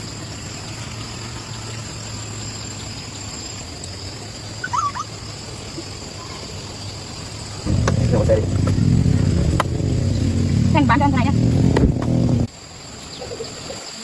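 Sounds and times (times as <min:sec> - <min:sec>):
low hum: 0:07.6 - 0:12.5.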